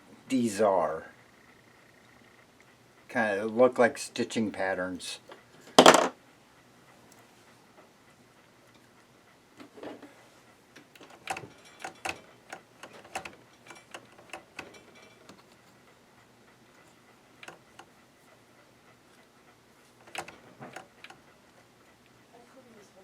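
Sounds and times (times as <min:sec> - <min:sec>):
hands handling machine parts: 0:05.8 - 0:06.2.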